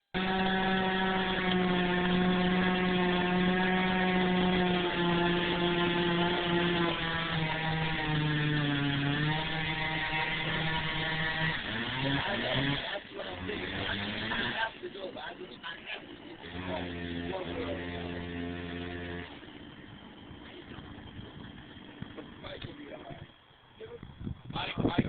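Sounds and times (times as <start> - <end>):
chainsaw cutting wood: 0.0 - 23.3.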